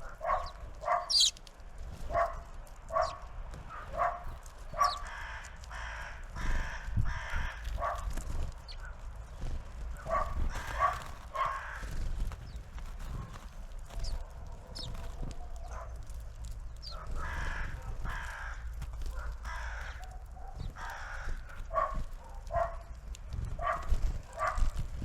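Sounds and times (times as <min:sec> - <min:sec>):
crow cawing: 0:00.0 - 0:01.4, 0:03.0 - 0:08.9, 0:10.0 - 0:12.4, 0:15.5 - 0:22.9
small birds calling: 0:00.0 - 0:24.9.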